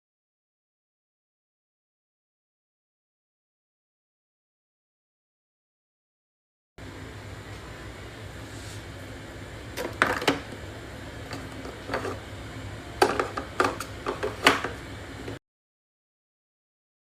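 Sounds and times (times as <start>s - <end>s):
steady low hum: 6.8s - 15.4s.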